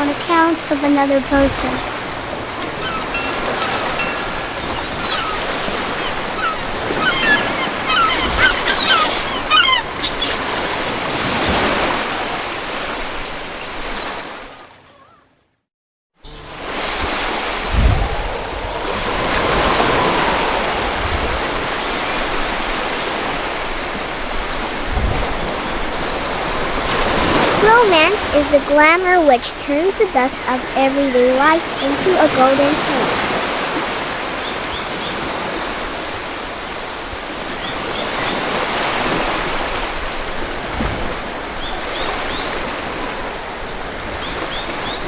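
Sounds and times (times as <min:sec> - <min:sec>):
rushing water: 0:00.0 - 0:14.8, 0:16.3 - 0:45.0
birds chirping: 0:00.3 - 0:12.0, 0:16.2 - 0:35.5.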